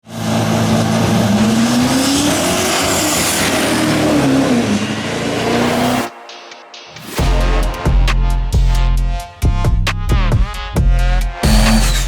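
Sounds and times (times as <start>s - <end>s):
diesel truck engine revving: 0.0s - 6.1s, 11.4s - 12.0s.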